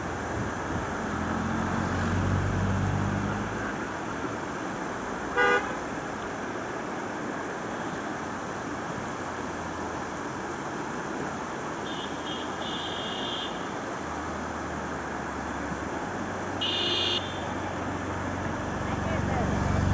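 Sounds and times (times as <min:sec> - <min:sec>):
river rushing: 0:00.0 - 0:19.9
vehicle horn toot: 0:05.4 - 0:05.8, 0:11.9 - 0:13.7, 0:16.6 - 0:17.7.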